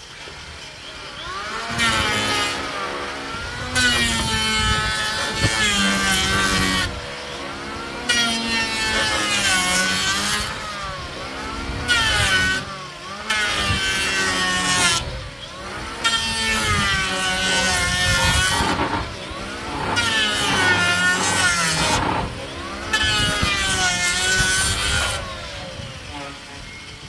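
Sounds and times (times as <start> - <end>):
power saw cutting: 0.0 - 27.0.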